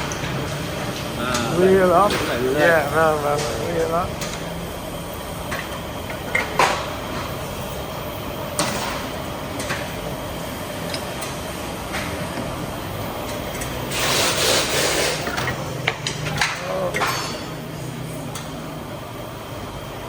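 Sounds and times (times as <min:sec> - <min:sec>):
loud hiss: 0:13.9 - 0:15.3.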